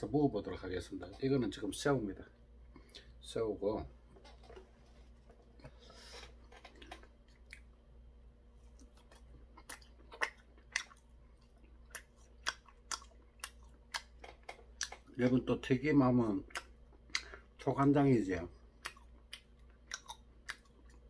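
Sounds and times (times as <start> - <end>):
crisp chewing crunches: 8.6 - 15.1, 18.8 - 21.0.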